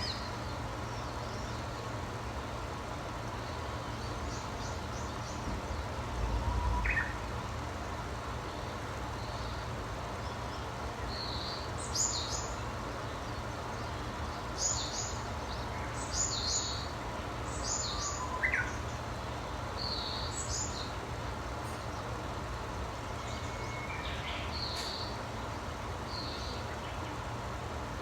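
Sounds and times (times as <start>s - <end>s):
songbird singing: 0.0s - 27.8s
low background rumble: 3.0s - 10.2s.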